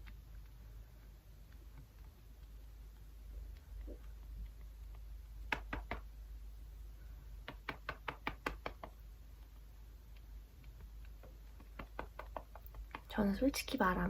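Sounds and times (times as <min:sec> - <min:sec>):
light sharp tapping clicks: 0:01.4 - 0:06.2, 0:07.4 - 0:13.2.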